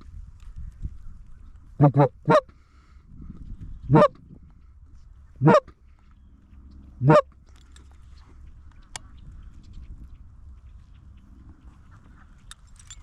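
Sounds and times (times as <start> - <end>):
goose honking: 1.8 - 2.4, 5.4 - 5.7, 7.0 - 7.3.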